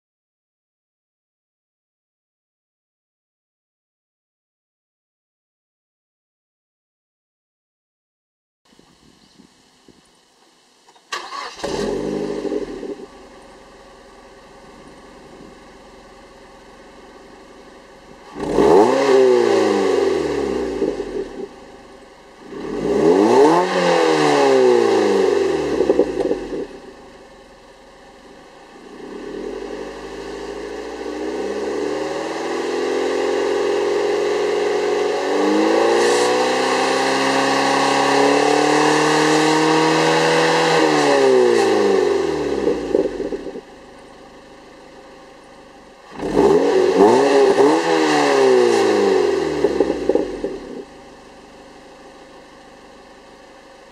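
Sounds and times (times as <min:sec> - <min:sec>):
car engine idling and revving: 0:11.2 - 0:53.9.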